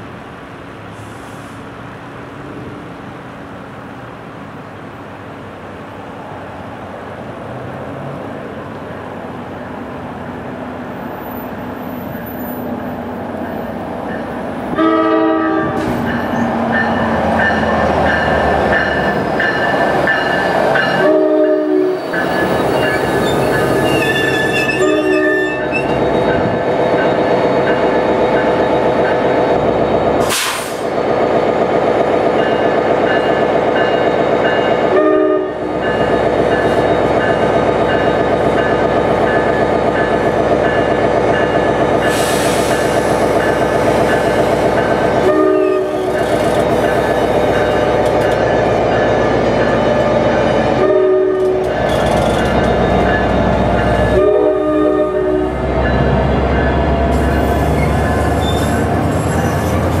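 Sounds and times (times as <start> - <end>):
diesel locomotive engine: 0.0 - 60.0
sharp hiss: 0.9 - 1.8, 30.2 - 31.0, 42.1 - 44.7
train wheel noise: 7.4 - 60.0
train horn blasts: 14.7 - 15.9, 20.9 - 22.0, 23.9 - 25.9, 34.9 - 35.8, 45.2 - 46.2, 50.1 - 51.7, 54.1 - 55.6.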